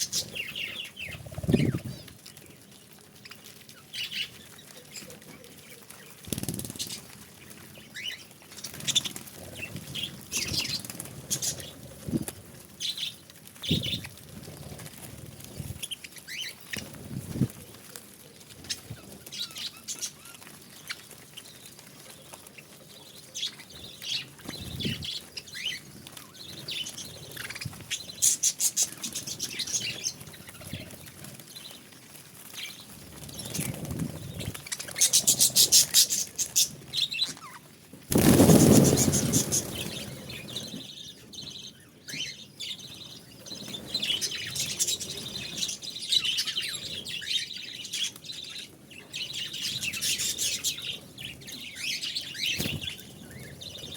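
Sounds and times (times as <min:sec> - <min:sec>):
budgerigars chirping and chattering: 0:00.0 - 0:02.1, 0:03.2 - 0:05.2, 0:05.8 - 0:11.8, 0:22.4 - 0:31.0, 0:32.5 - 0:53.9.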